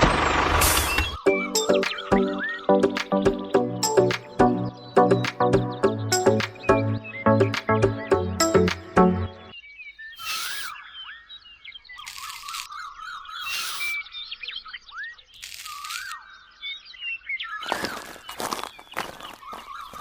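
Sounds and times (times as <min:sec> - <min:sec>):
small birds chirping: 0:00.8 - 0:20.0
harsh rasping noise: 0:10.2 - 0:10.7, 0:13.4 - 0:14.0.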